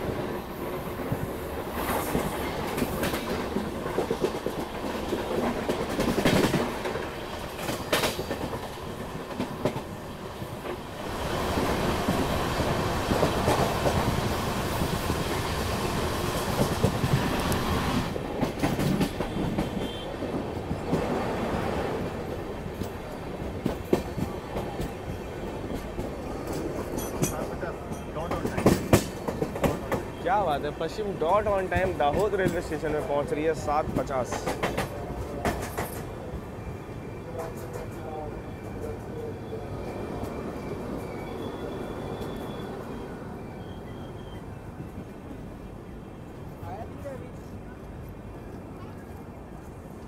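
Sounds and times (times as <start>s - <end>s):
passenger train running: 0.0s - 50.0s
passing train rush: 0.0s - 50.0s
wheels clacking over rail joints: 1.0s - 15.7s, 16.4s - 21.2s, 22.0s - 36.2s, 37.3s - 39.3s.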